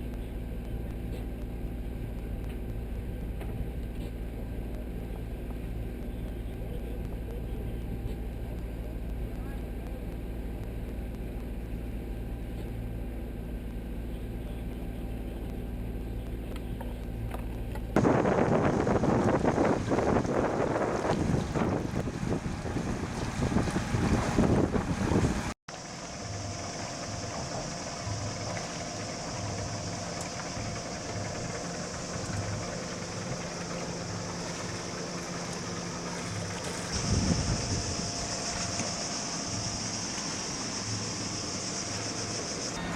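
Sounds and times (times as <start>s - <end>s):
boat engine humming: 0.0s - 42.9s
water noise: 17.3s - 42.9s.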